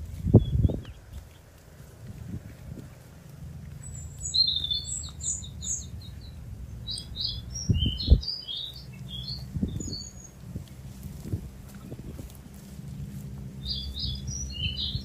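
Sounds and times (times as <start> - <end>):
low rumble: 0.0 - 15.0
small bird singing: 0.2 - 1.6, 3.6 - 10.7, 13.0 - 15.0.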